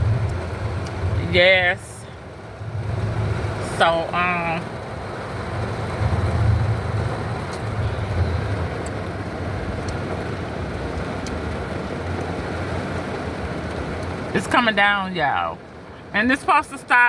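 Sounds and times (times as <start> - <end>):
low wavering rumble: 0.0 - 11.4
heavy rain on car roof: 0.0 - 17.0.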